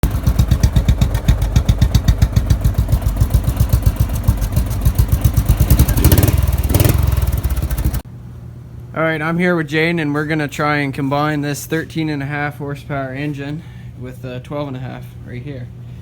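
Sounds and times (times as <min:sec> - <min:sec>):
mower engine chugging: 0:00.0 - 0:08.0.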